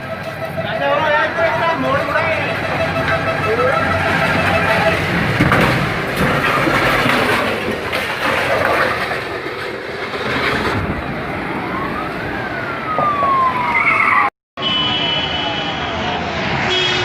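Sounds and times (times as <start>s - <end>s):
siren wail: 0.0s - 5.2s, 10.8s - 16.8s
road vehicle noise: 0.0s - 17.0s.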